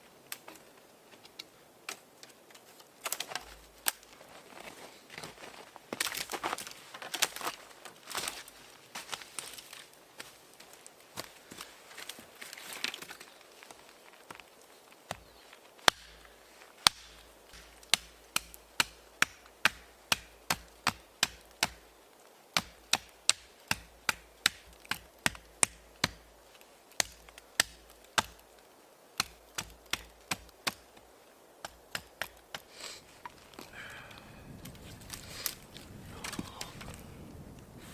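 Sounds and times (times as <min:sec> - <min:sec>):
blade chopping into wood: 0:15.9 - 0:16.2, 0:16.9 - 0:21.8, 0:22.6 - 0:26.3, 0:27.0 - 0:28.4, 0:29.2 - 0:31.0, 0:31.6 - 0:33.4.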